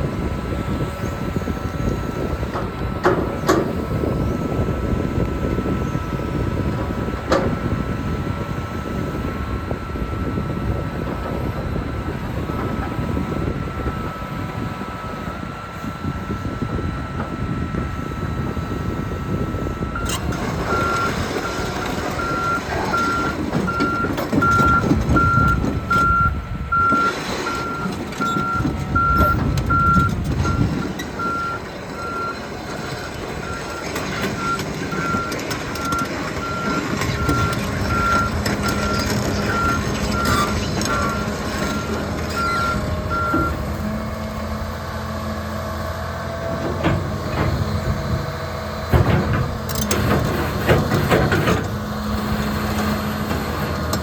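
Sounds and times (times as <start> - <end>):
diesel engine running: 0.0 - 54.0
excavator travel alarm beeping: 0.1 - 45.3.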